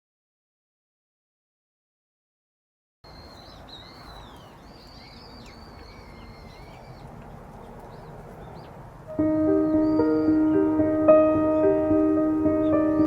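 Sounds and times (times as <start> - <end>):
small birds chirping: 3.0 - 13.0
low outdoor background hiss: 3.1 - 13.0.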